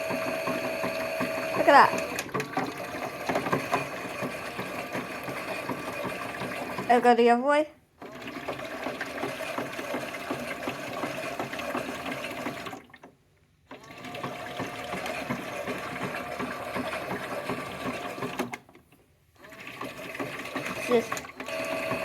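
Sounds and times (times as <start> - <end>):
small motor whirring: 0.0 - 7.0, 19.4 - 22.0
toy washing machine drum turning: 0.0 - 7.2, 8.0 - 13.0, 13.7 - 18.6, 19.4 - 22.0.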